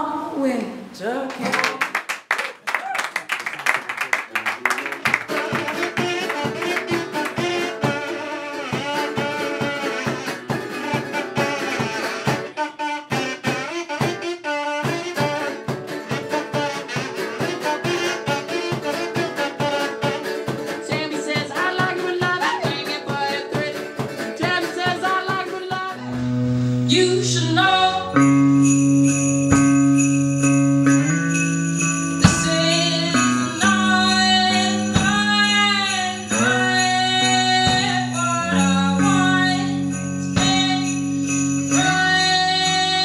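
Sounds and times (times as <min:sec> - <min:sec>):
band music playing: 0:04.7 - 0:43.0
steady drumbeat: 0:04.9 - 0:12.5, 0:14.9 - 0:25.9, 0:31.8 - 0:36.1.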